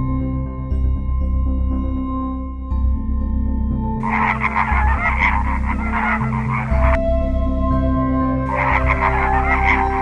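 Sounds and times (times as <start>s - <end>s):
pulsing animal calls: 4.0s - 7.0s, 8.5s - 10.0s
music drone of held tones: 4.0s - 10.0s.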